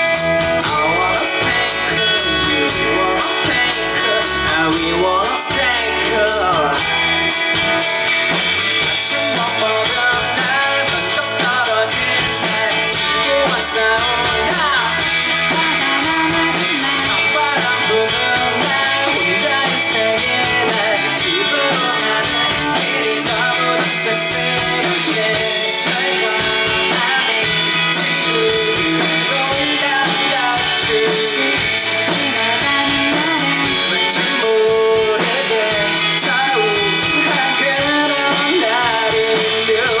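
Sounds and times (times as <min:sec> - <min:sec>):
live rock band playing: 0:00.0 - 0:40.0.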